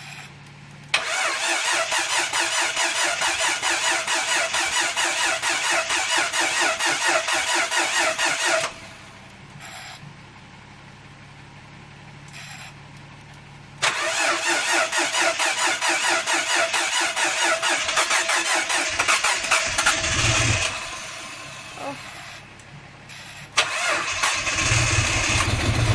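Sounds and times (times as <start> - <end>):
starter motor cranking engine: 0.8 - 8.9, 13.8 - 25.9.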